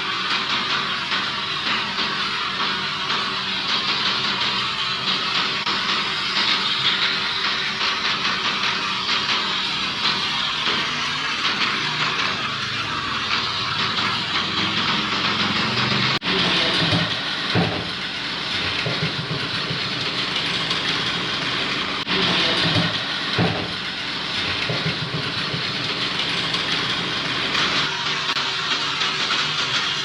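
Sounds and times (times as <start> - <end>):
toy train motors whirring: 0.0 - 16.2, 22.9 - 30.0.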